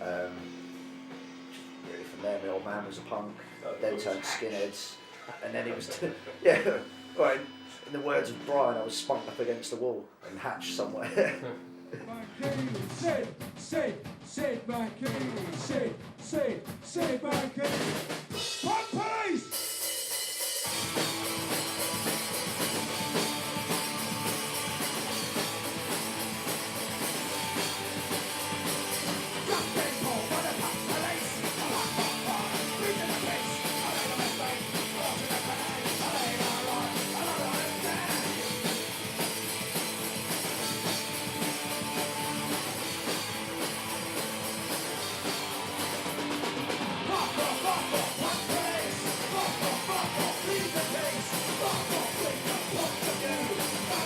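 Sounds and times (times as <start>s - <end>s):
drum kit: 0.0s - 3.2s, 10.5s - 54.0s
punk rock band playing: 0.0s - 4.1s, 5.0s - 9.6s, 10.6s - 54.0s
person singing: 10.6s - 17.8s, 29.3s - 38.9s, 47.0s - 54.0s.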